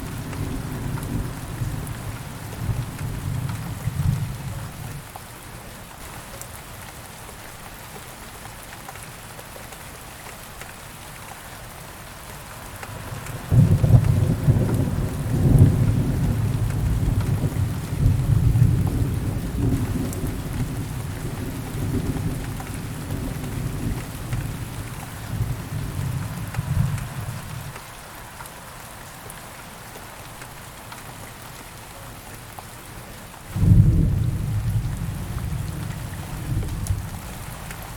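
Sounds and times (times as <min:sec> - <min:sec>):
steady rain: 0:00.0 - 0:37.9
thunder rumble: 0:13.2 - 0:27.8.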